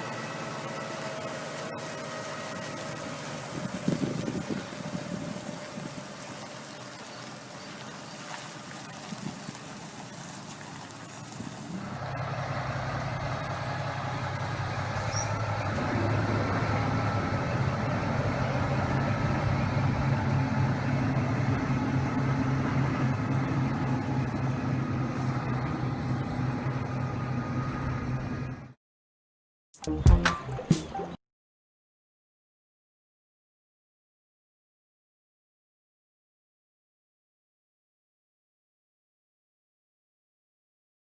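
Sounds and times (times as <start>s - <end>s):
semi-truck diesel engine running: 0.0s - 7.2s, 11.8s - 28.7s.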